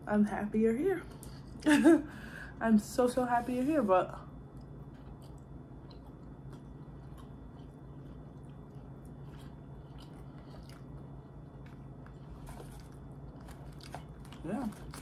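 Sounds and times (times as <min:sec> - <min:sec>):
low steady hum: 0:00.0 - 0:15.0
person chewing food: 0:04.5 - 0:15.0.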